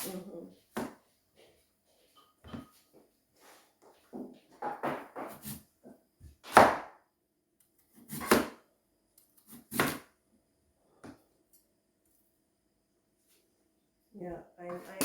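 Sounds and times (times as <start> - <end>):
knife chopping on cutting board: 4.6 - 5.6, 6.4 - 7.0, 8.0 - 8.6, 9.5 - 10.1.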